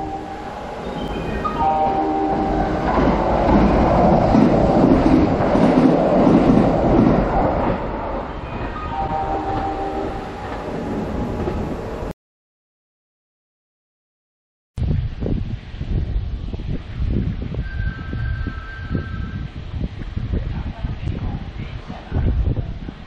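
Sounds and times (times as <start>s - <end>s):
electric train passing: 0.0s - 12.1s.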